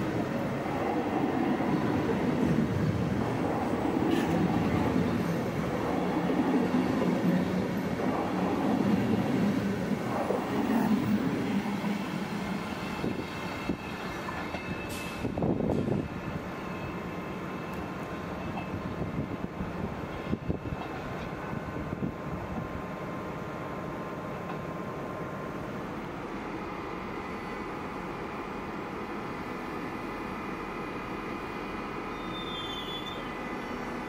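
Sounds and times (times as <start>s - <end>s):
train wheels rumbling over rails: 0.0s - 34.0s.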